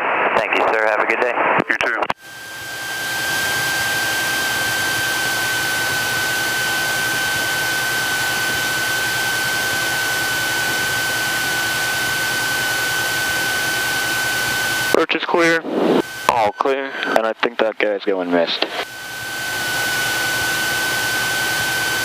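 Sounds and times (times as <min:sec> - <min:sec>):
aircraft engine running: 0:02.2 - 0:22.0
high-pitched whine: 0:02.2 - 0:22.0.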